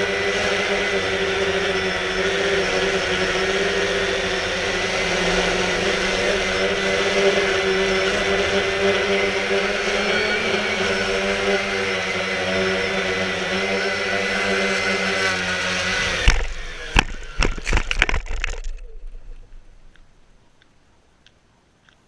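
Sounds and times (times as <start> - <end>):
drone motors whining: 0.0 - 20.6
faint ticks: 19.9 - 22.0.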